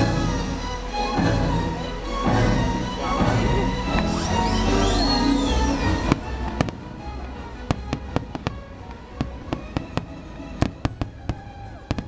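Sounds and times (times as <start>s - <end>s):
fireworks cracking: 5.9s - 12.0s.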